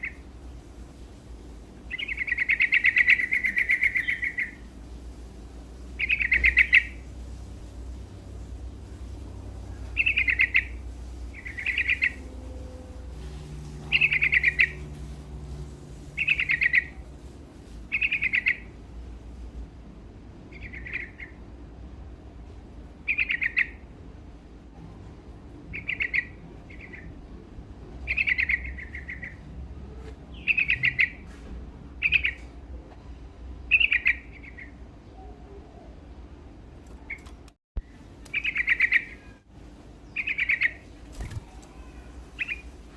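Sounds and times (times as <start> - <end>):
bulbul singing: 1.9 - 4.7, 6.0 - 7.1, 9.6 - 15.3, 16.1 - 17.0, 17.9 - 18.7, 25.7 - 27.1, 28.1 - 29.4, 30.3 - 31.2, 33.7 - 35.9, 36.9 - 39.4, 40.0 - 42.8.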